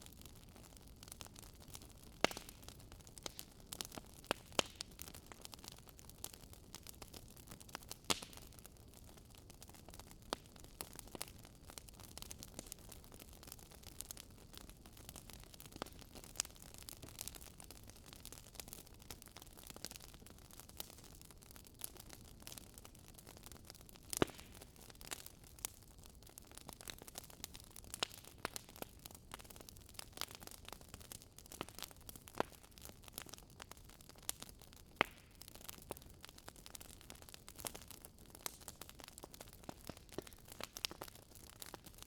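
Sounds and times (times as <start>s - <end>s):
logs crackling: 1.0s - 23.4s, 26.6s - 42.0s
sharp pops of fire: 2.2s - 5.1s, 24.1s - 25.2s, 35.0s - 35.9s, 37.6s - 42.0s.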